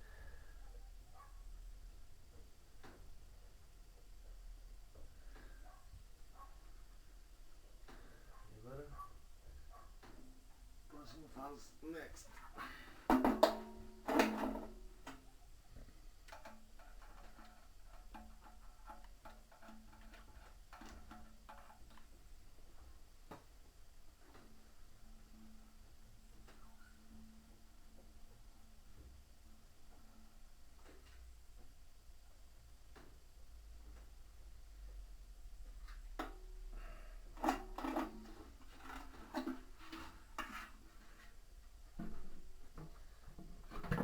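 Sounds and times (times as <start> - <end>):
low steady hum: 0.0 - 44.0
tools knocking and clattering: 13.1 - 15.3.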